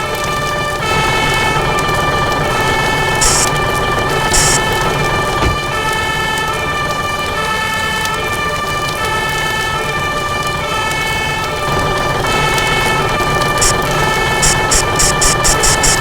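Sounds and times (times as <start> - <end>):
two-tone siren: 0.0 - 16.0
steady hiss: 3.2 - 3.6, 4.3 - 4.8, 13.6 - 16.0.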